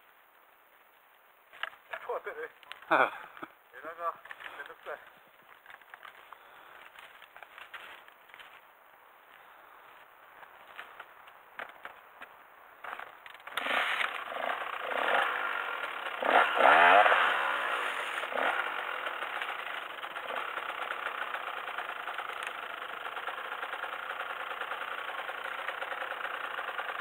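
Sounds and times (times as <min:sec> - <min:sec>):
motorcycle engine revving and idling: 0:13.4 - 0:27.0.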